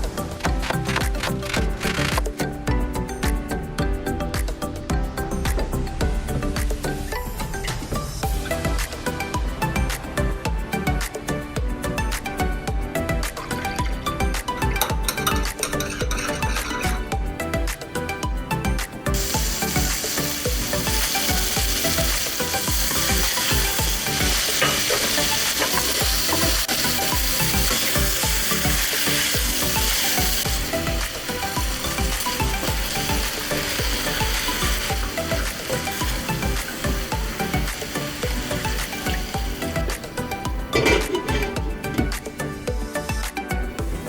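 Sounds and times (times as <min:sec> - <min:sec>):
background music with beat: 0:00.0 - 0:44.0
food sizzling in frying pan: 0:13.1 - 0:17.7, 0:18.5 - 0:43.1.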